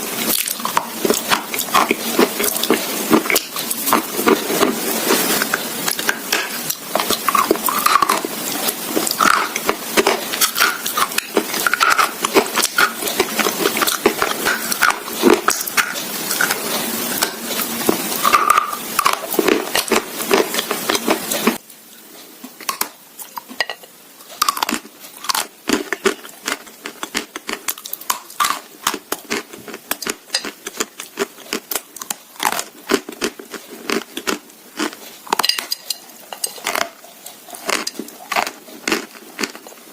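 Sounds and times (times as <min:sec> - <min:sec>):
background hiss: 0:00.0 - 0:39.9
crunching and chewing: 0:00.2 - 0:21.6, 0:24.2 - 0:39.9
cutlery clinking against a dish: 0:35.3 - 0:36.8.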